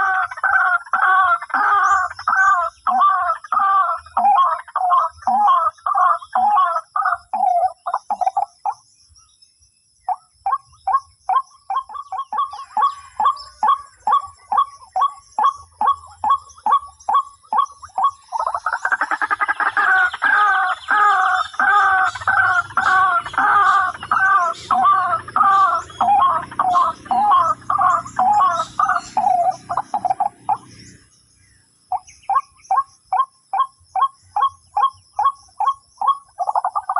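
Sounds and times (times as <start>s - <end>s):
waterhen loud repeated call: 0.0s - 7.8s, 10.5s - 30.7s
waterhen clucking calls: 0.0s - 8.8s, 10.1s - 31.0s, 31.9s - 36.9s.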